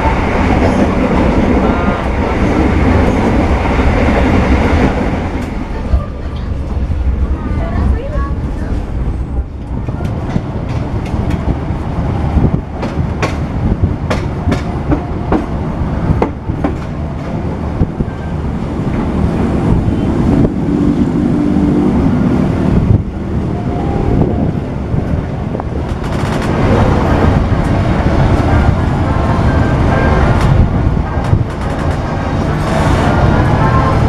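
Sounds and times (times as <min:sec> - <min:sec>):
train rumble: 0:00.0 - 0:34.0
train wheels clacking: 0:12.8 - 0:15.6.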